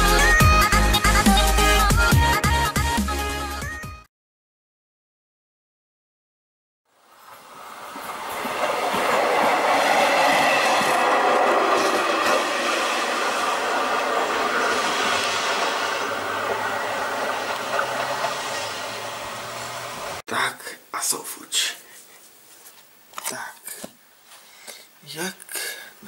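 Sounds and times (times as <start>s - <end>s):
passenger train passing: 7.0s - 20.2s.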